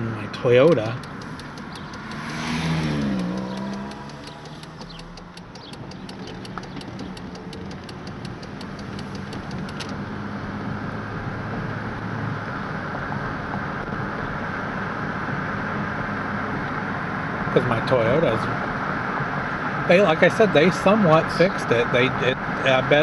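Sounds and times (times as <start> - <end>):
car engine revving: 0.0 - 23.0
road noise: 0.0 - 23.0
turn signal clicking: 0.4 - 10.0.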